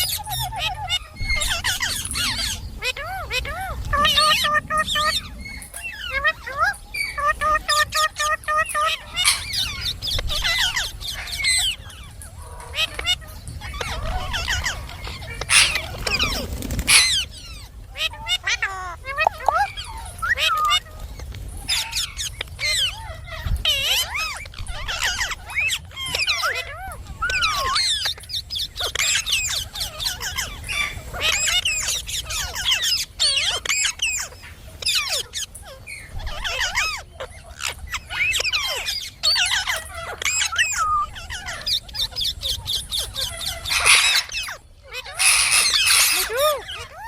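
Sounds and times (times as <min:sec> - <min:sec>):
parakeet chattering: 0:00.0 - 0:20.5, 0:36.4 - 0:47.0.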